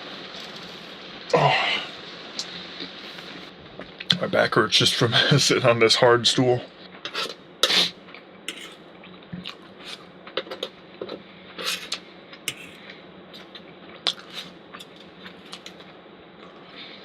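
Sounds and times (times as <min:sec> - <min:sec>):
steady low hiss: 0:00.0 - 0:17.0
utensils scraping cookware: 0:08.5 - 0:08.8, 0:11.1 - 0:12.8.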